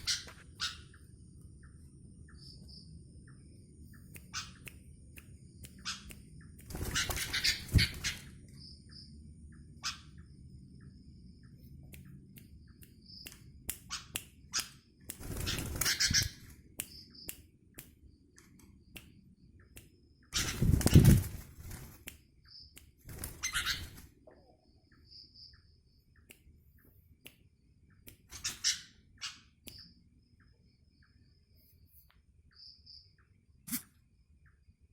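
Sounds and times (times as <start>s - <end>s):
faint insect chirps: 0.0s - 34.9s
bird wings flapping: 6.7s - 8.3s, 15.2s - 16.4s, 20.4s - 22.1s, 23.1s - 24.1s.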